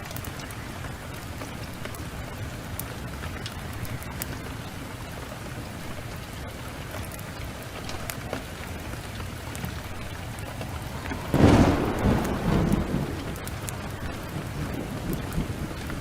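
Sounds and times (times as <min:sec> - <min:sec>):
heavy rain: 0:00.0 - 0:16.0
wood fire crackling: 0:00.0 - 0:16.0
thunderclap rolling: 0:09.5 - 0:16.0.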